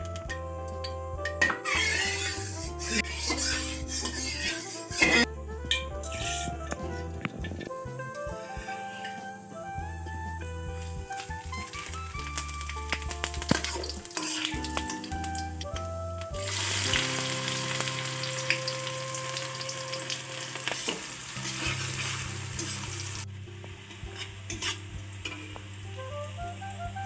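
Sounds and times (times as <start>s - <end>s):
spices sizzling in hot oil: 0.0s - 6.9s, 7.6s - 27.0s
metal spatula stirring: 0.8s - 6.9s, 10.9s - 15.4s, 19.9s - 23.2s, 24.0s - 25.6s.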